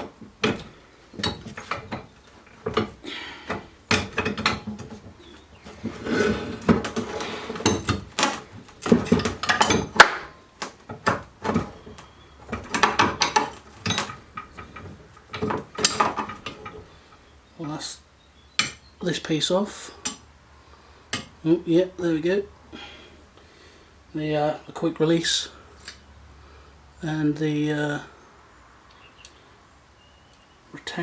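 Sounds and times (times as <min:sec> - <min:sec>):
metal parts clinking and scraping: 0:00.0 - 0:17.2.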